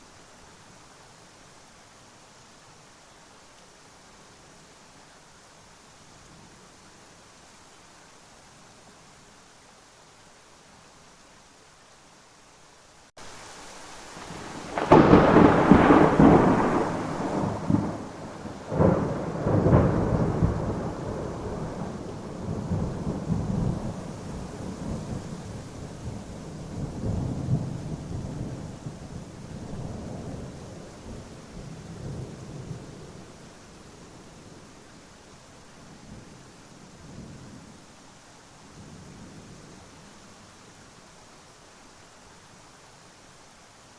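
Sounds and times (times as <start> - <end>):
steady rain: 0.0 - 43.9
thunder: 14.3 - 33.2.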